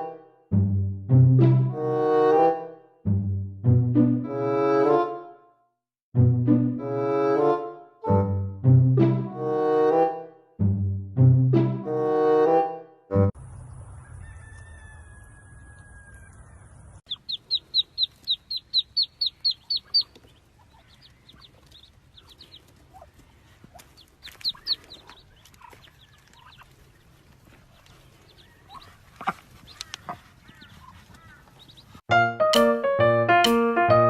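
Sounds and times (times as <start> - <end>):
bird peeping: 13.6 - 32.0.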